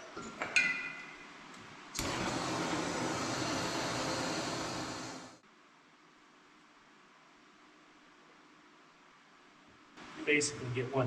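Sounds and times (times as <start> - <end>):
gas torch hissing: 2.0 - 5.4.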